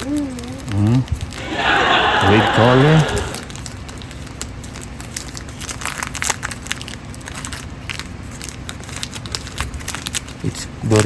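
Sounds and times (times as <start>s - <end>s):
plastic wrapper crinkling: 4.7s - 10.3s.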